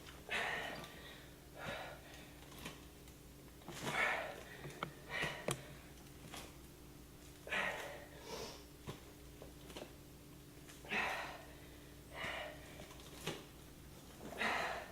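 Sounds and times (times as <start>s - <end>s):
person breathing hard: 0.2s - 2.4s, 3.8s - 5.9s, 7.4s - 8.7s, 10.8s - 12.9s, 14.2s - 14.9s.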